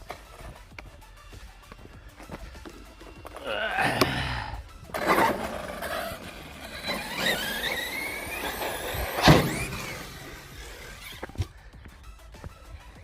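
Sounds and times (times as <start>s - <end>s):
electric motor whining: 4.8s - 11.5s
sharp thump: 9.2s - 9.8s.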